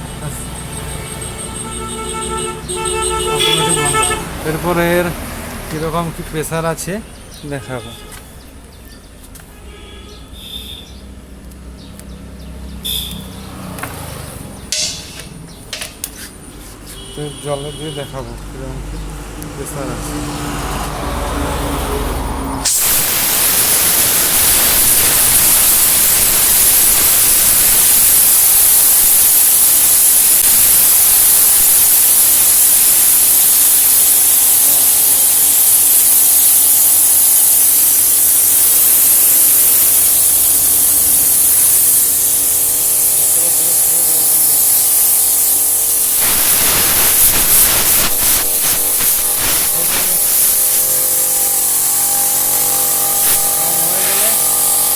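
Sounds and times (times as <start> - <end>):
air spray gun hissing: 1.5 - 5.0, 12.8 - 18.0, 22.6 - 54.9.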